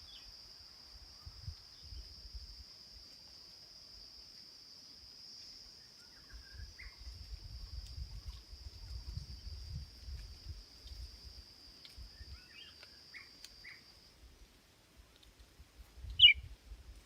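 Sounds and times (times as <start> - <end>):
high insect drone: 0.0 - 14.3.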